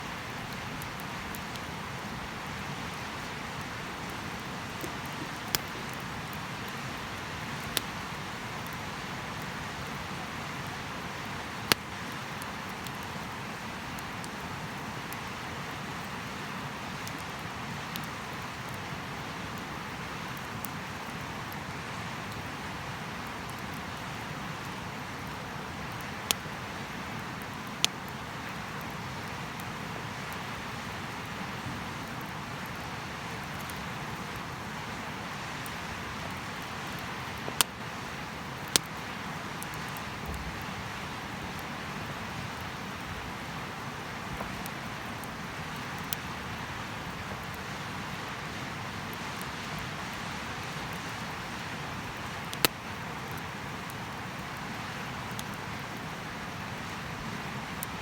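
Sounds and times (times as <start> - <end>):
wood fire hissing: 0.0 - 58.0
burning wood popping and cracking: 3.0 - 10.0, 11.2 - 13.3, 35.7 - 37.9, 38.5 - 43.5, 44.2 - 46.3, 52.1 - 54.4.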